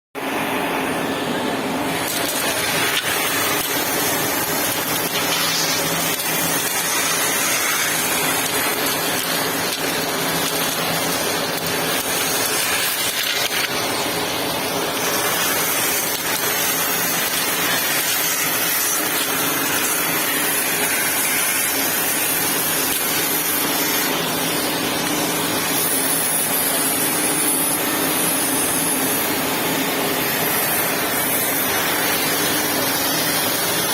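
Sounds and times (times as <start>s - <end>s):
vacuum cleaner running: 0.2s - 33.9s.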